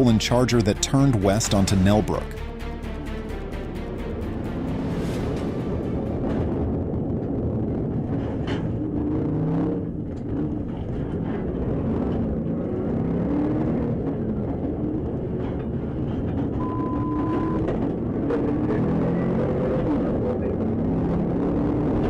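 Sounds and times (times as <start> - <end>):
police car engine and road noise: 4.4 - 22.0
short steady beep: 16.6 - 17.6.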